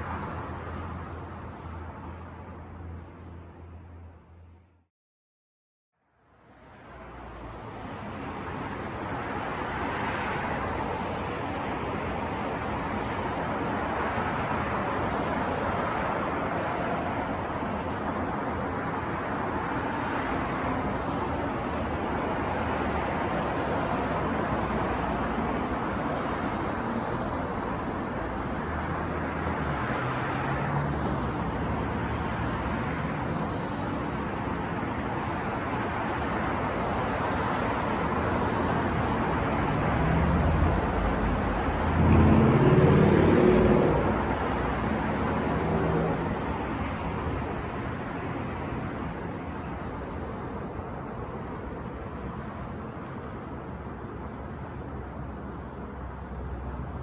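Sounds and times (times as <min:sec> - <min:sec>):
passing cars: 0:06.3 - 0:57.0
vehicle engine passing: 0:39.6 - 0:46.6.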